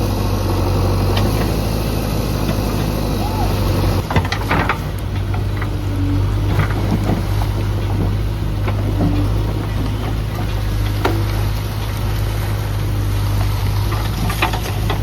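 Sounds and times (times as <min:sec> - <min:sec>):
diesel engine running: 0:00.0 - 0:15.0
short knocks and clanks: 0:04.0 - 0:05.8, 0:06.4 - 0:12.0.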